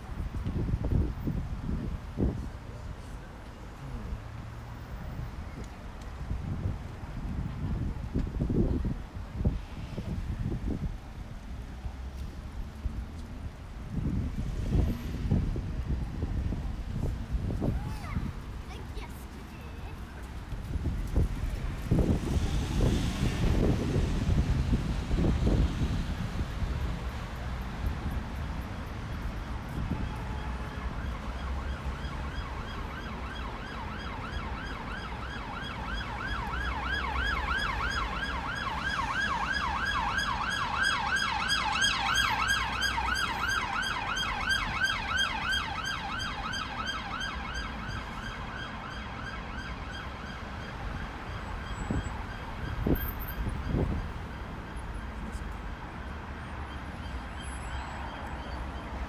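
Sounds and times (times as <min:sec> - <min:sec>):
road traffic rumble: 0:00.0 - 0:59.0
siren yelping: 0:30.4 - 0:53.9.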